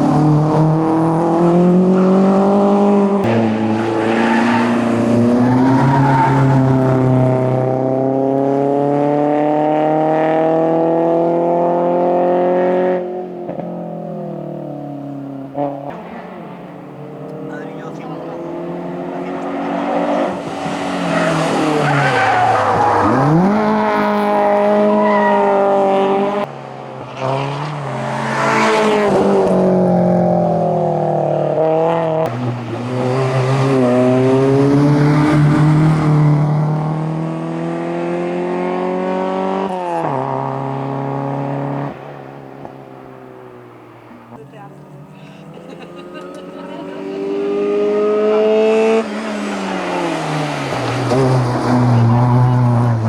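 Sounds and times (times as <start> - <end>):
second racing car engine: 0.0 - 53.0
racing car engine revving: 15.5 - 42.8, 44.9 - 53.0.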